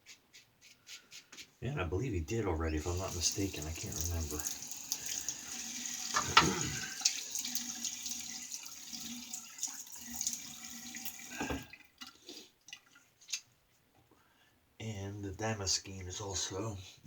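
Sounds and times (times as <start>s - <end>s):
tap water running into sink: 2.8s - 12.1s.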